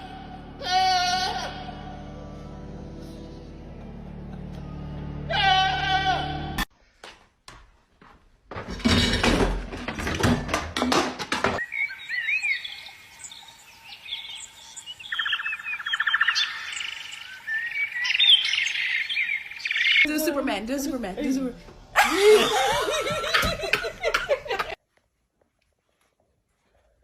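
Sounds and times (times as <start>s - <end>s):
small birds chirping: 11.6s - 20.3s.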